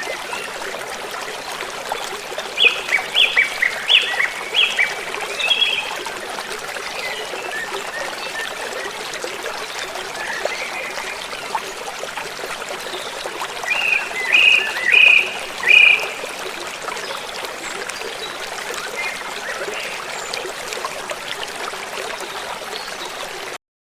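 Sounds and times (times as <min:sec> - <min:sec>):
river water flowing: 0:00.0 - 0:23.6
bird calling: 0:13.7 - 0:16.2.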